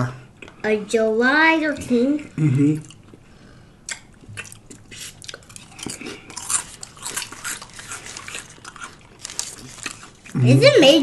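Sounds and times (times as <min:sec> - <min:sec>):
biting and chewing sandwich: 0:03.9 - 0:10.4.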